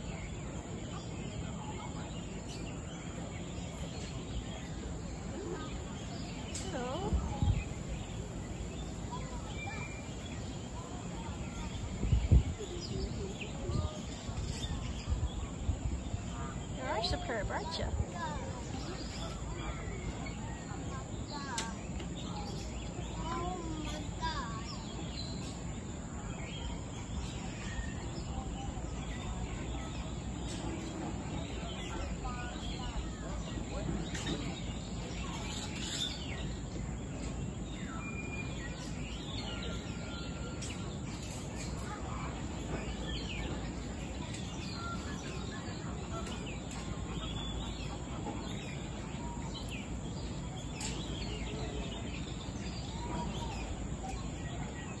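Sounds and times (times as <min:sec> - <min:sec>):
faint bird chirps and whistles: 0:26.3 - 0:54.9.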